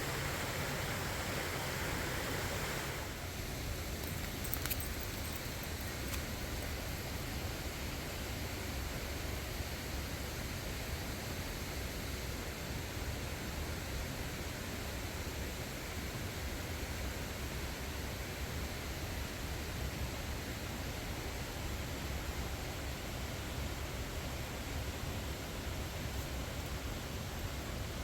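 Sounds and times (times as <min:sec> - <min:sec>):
waterfall rushing: 0:00.0 - 0:03.1.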